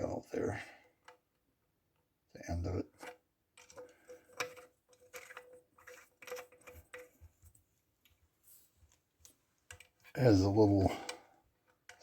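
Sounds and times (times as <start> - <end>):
metal clicks and taps: 9.2 - 10.1.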